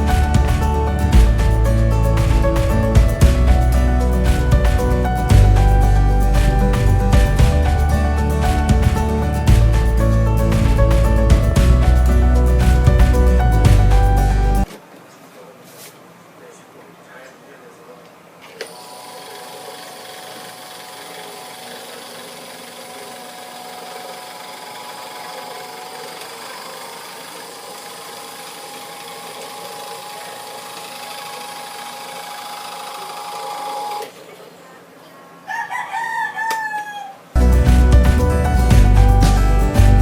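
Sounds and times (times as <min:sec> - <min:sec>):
electric fan motor whine: 0:18.5 - 0:34.3
rooster crowing: 0:35.4 - 0:37.4.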